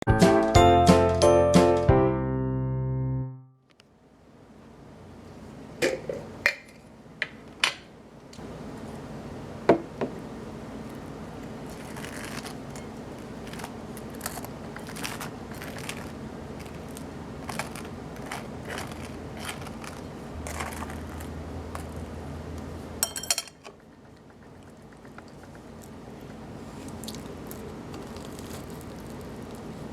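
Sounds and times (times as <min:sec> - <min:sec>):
steady low hum: 0:20.3 - 0:23.3.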